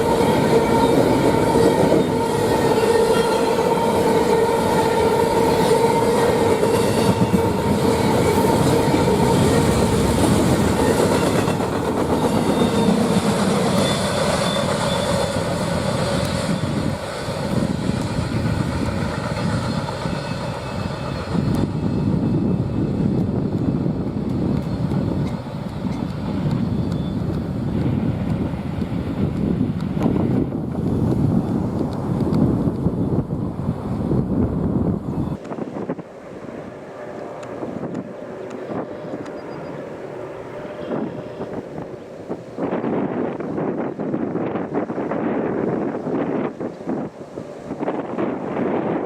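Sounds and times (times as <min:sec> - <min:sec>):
train horn chord: 0:00.0 - 0:11.5, 0:36.3 - 0:42.9
freight train wheels clacking: 0:00.0 - 0:32.9.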